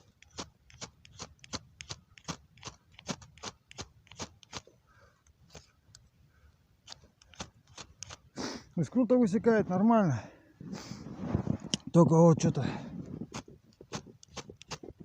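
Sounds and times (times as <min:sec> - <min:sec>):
striker scraping flint: 0:00.0 - 0:06.0, 0:06.8 - 0:08.7, 0:13.0 - 0:15.0.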